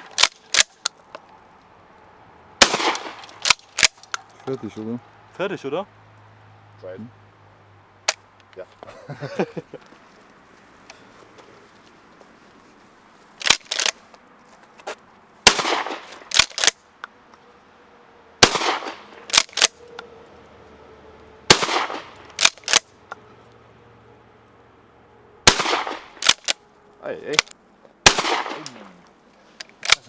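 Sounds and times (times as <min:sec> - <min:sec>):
shotgun firing: 0:02.6 - 0:04.0, 0:15.4 - 0:16.7, 0:18.4 - 0:19.7, 0:21.5 - 0:22.8, 0:25.5 - 0:26.5, 0:28.0 - 0:28.8
shotgun pump racking clacks: 0:13.4 - 0:14.0, 0:16.3 - 0:16.8, 0:22.3 - 0:22.9.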